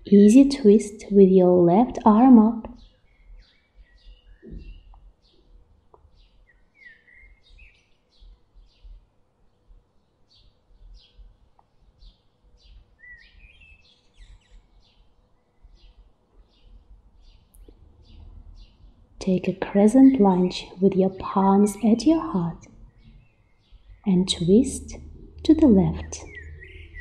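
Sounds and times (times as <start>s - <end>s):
bird chirping: 2.0s - 27.0s
low background rumble: 16.7s - 27.0s.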